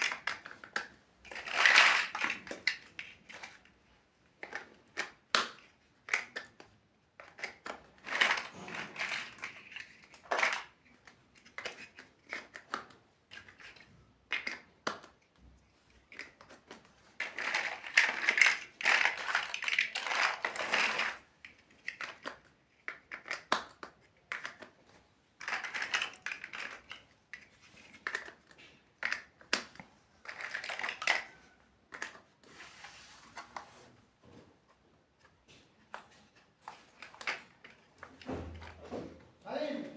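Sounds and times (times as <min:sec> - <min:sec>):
plastic bricks clicking and rattling: 0:00.0 - 0:32.4, 0:35.2 - 0:38.7
scraping and rummaging among pieces: 0:07.2 - 0:12.7, 0:15.8 - 0:24.8, 0:25.4 - 0:39.3.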